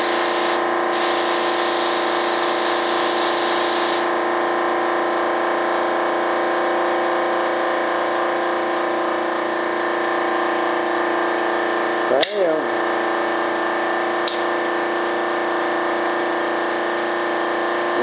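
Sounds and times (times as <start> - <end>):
spray gun hissing: 0.0 - 4.1
machine hum: 0.0 - 18.0.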